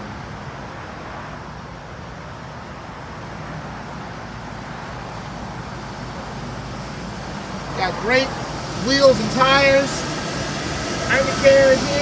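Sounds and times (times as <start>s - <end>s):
outdoor background noise: 0.0s - 12.0s
truck engine idling: 4.3s - 12.0s.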